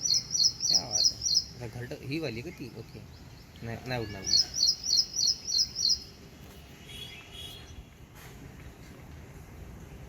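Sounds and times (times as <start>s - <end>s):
small bird calling high notes: 0.0s - 1.6s, 3.8s - 6.2s
faint outdoor background hum: 0.0s - 10.0s.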